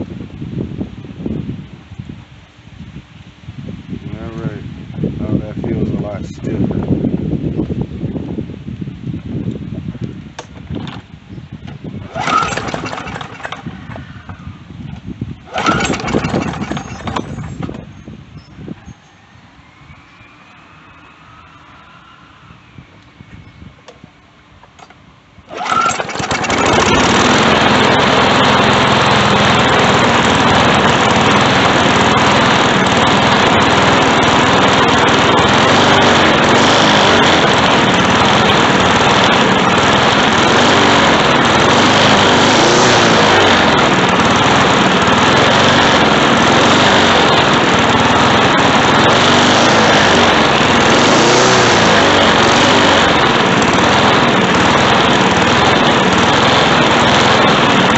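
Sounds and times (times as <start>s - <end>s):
lawn mower engine running: 9.4s - 18.6s, 23.8s - 57.9s.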